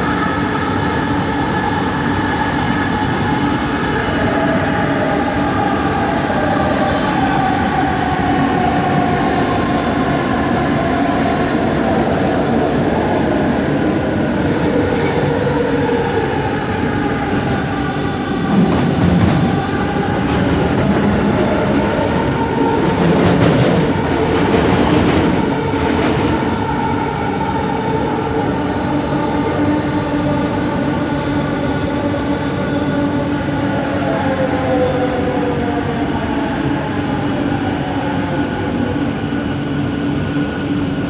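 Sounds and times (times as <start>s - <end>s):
train rattling: 14.2s - 37.0s.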